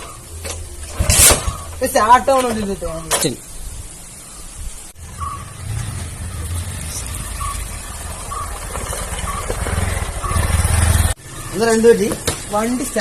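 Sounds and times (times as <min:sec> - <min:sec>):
motorcycle engine rumble: 0:04.3 - 0:13.0.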